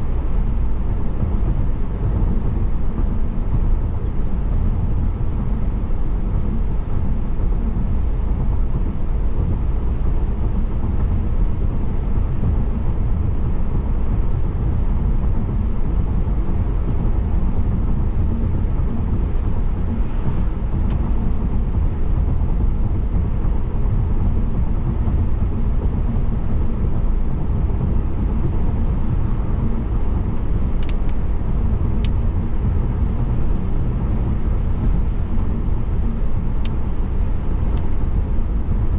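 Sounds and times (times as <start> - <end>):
car road noise rumble: 0.0 - 38.9
faint sharp clicks: 30.8 - 31.2.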